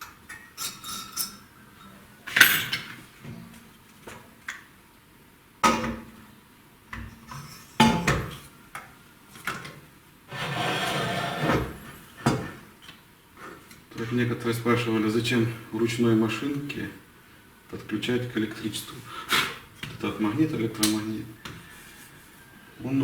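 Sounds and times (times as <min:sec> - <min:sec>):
metal tools clinking: 0:02.3 - 0:02.9.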